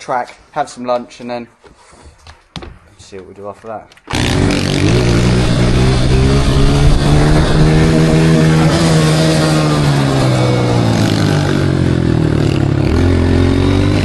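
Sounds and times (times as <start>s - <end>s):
dirt bike engine revving: 4.1s - 14.0s.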